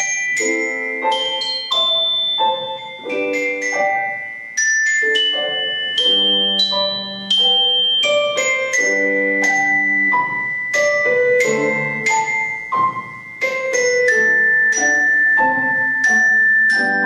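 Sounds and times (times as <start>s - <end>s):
tuned mallet percussion melody: 0.0s - 17.0s.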